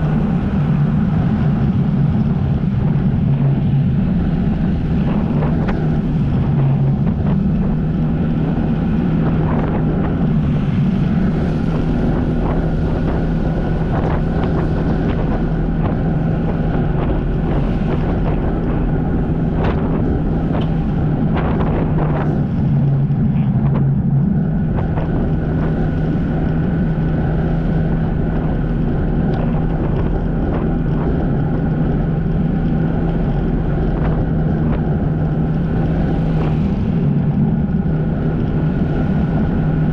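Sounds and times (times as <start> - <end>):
jet ski engine running: 0.0 - 39.9
wind on microphone: 0.0 - 39.9.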